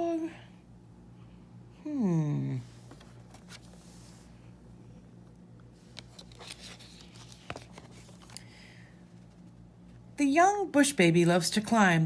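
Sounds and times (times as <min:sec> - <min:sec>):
paper pages turning: 0:02.8 - 0:04.2, 0:05.8 - 0:09.6.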